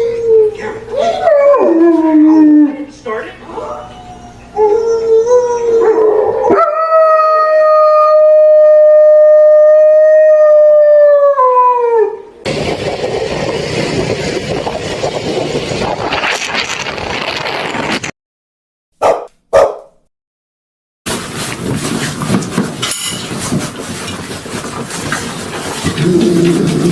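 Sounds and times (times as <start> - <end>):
dog howling: 0.0 - 2.8, 3.8 - 12.3, 26.0 - 26.9.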